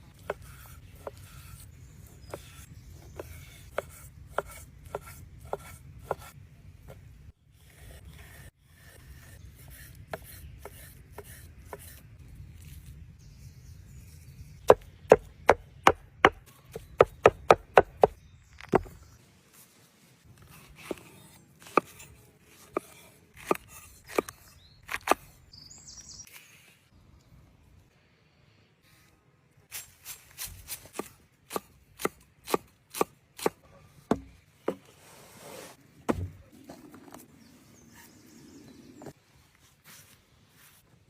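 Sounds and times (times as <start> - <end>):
knife chopping on wooden board: 14.7 - 18.9, 31.0 - 34.8.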